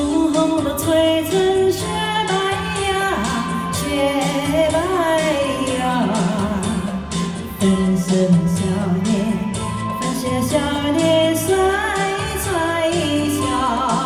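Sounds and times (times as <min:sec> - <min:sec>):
band accompaniment with beat: 0:00.0 - 0:14.0
woman singing pop song: 0:00.0 - 0:14.0.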